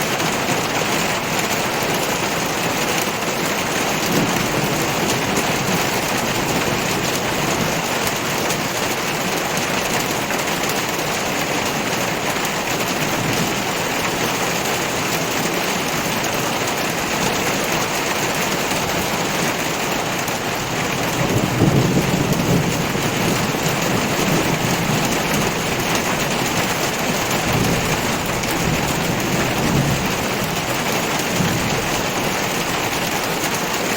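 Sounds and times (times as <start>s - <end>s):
heavy rain pouring: 0.0s - 33.9s
thunder rumbling: 20.9s - 33.0s.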